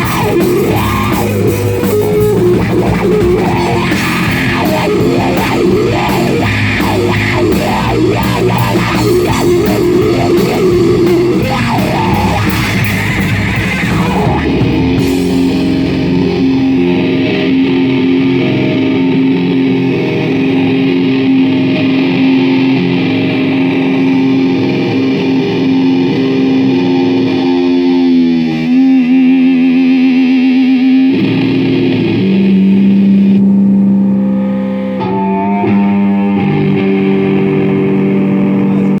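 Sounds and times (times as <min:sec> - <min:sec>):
distorted electric guitar notes: 0:00.0 - 0:39.0
live rock band music: 0:00.0 - 0:39.0.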